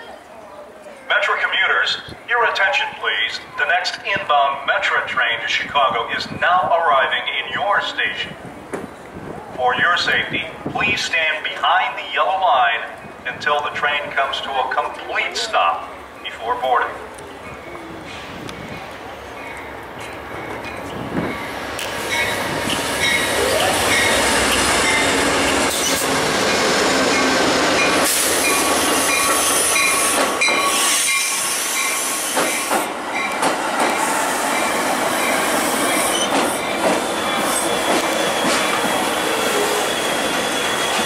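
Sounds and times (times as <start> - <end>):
train rail and wheel noise: 0.0 - 41.0
squealing train wheels: 17.4 - 41.0.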